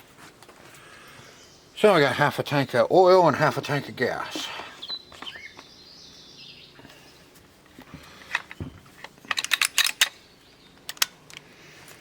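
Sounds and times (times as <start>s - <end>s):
clicks and knocks of handling: 7.7s - 10.2s, 10.8s - 12.0s.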